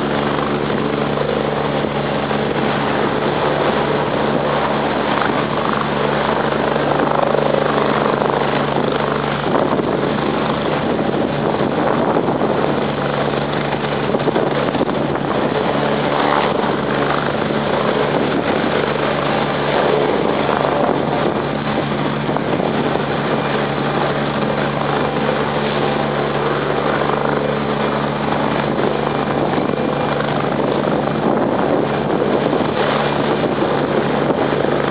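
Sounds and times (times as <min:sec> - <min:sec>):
helicopter rotor and engine: 0:00.0 - 0:34.9.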